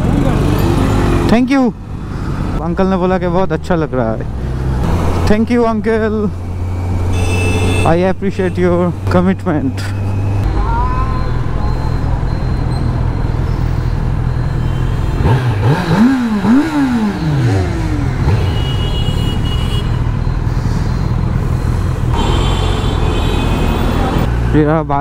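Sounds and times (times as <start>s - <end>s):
motorcycle engine revving: 0.0s - 2.6s, 12.8s - 24.5s.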